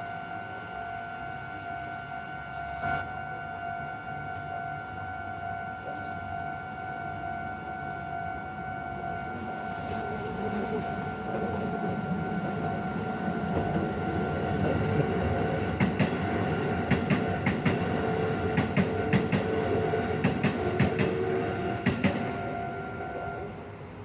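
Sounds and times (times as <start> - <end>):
train wheels clacking over rail joints: 14.6 - 23.4.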